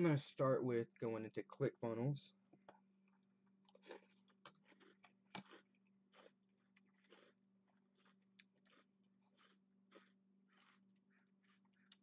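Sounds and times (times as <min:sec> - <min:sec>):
man chewing: 0:02.6 - 0:12.0.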